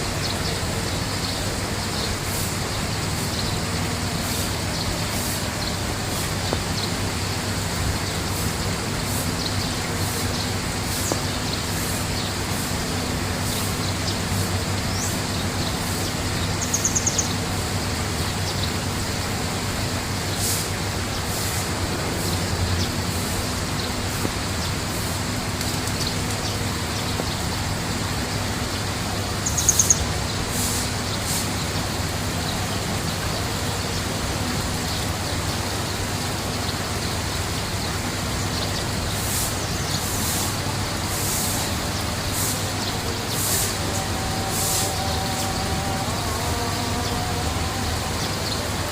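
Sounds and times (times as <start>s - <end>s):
rushing background noise: 0.0s - 48.9s
low hum: 21.6s - 34.7s
bird trilling: 29.2s - 31.2s.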